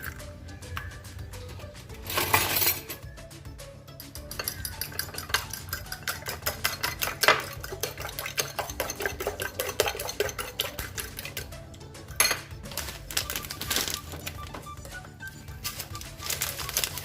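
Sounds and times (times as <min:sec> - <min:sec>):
utensil clinking against bowl: 0:04.0 - 0:11.5, 0:12.2 - 0:12.6.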